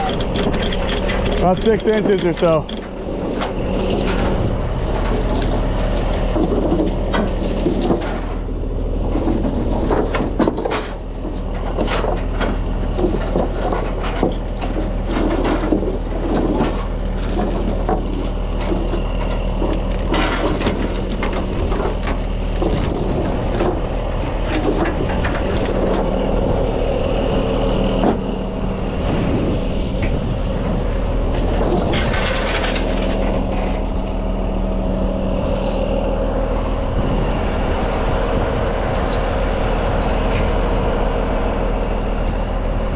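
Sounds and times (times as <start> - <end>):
chain binders clanking: 0.0 - 26.1, 31.3 - 34.3, 34.9 - 36.0, 40.0 - 42.9
truck engine idling: 0.0 - 42.9.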